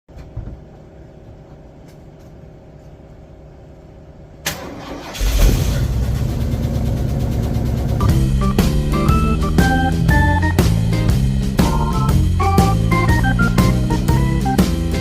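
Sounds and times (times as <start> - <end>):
vehicle engine cranking and running: 4.5 - 10.5.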